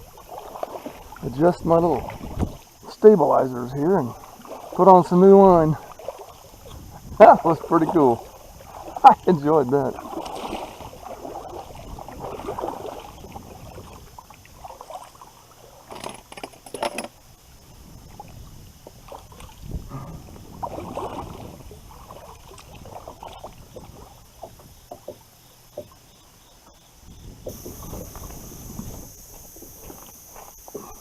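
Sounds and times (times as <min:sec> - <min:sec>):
knocks and clicks from kayak: 0:01.8 - 0:02.7, 0:09.9 - 0:15.0, 0:15.8 - 0:17.2, 0:18.0 - 0:31.0.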